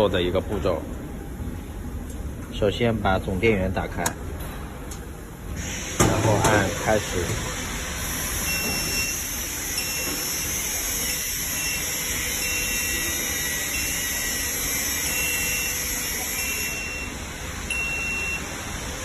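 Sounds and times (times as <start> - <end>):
machine steady hiss: 5.5 - 19.0
short high beeps: 8.5 - 9.2, 11.6 - 14.2, 15.0 - 18.5.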